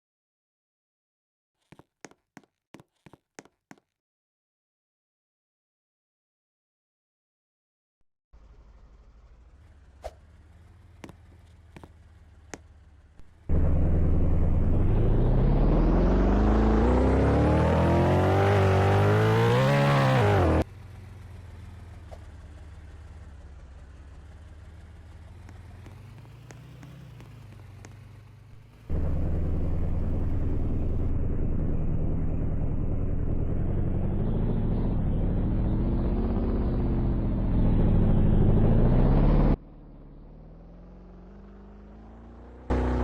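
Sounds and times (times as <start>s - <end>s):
loud steady low rumble: 13.4s - 15.8s, 28.9s - 38.5s
engine revving up: 13.5s - 20.7s, 28.6s - 43.0s.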